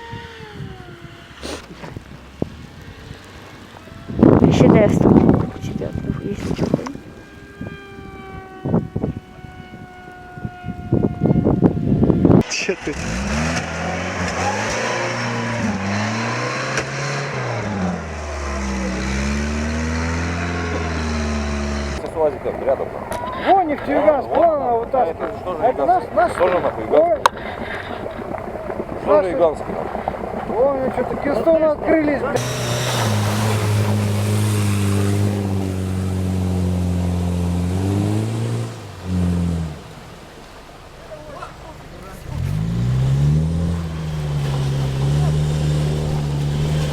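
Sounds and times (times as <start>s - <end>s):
vehicle engine revving: 12.3s - 23.2s, 31.9s - 46.9s.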